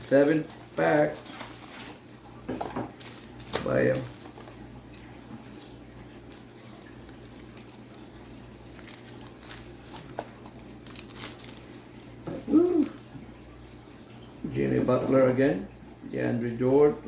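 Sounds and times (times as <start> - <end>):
card pack being opened: 3.0 - 4.4, 8.7 - 13.0.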